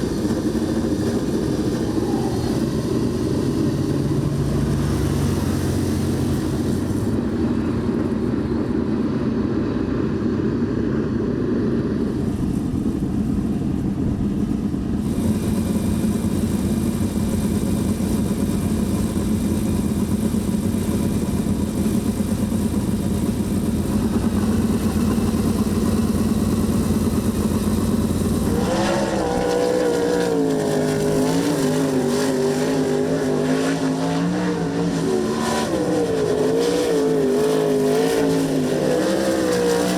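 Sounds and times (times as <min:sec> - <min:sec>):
race car engines droning: 0:00.0 - 0:39.9
race car engine rising and falling: 0:23.2 - 0:39.9.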